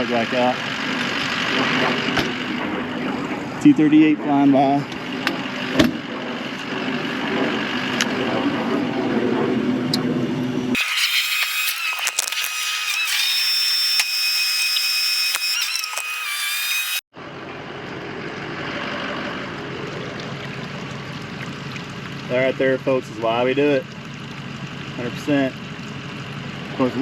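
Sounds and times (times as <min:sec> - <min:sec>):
high whining tones: 0:00.0 - 0:19.8
jet flying over: 0:01.5 - 0:10.8.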